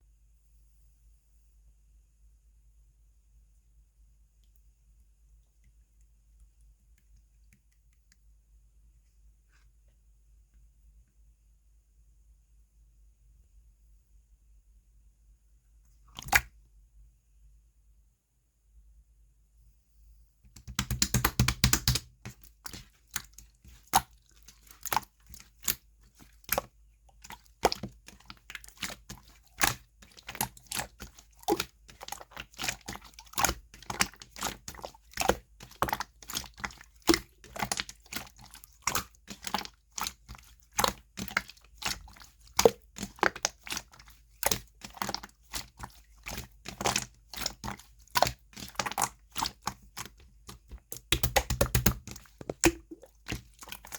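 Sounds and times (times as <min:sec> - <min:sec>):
slime clicking pops: 0:20.5 - 0:22.1, 0:51.0 - 0:52.9
slime crackling: 0:20.6 - 0:53.9.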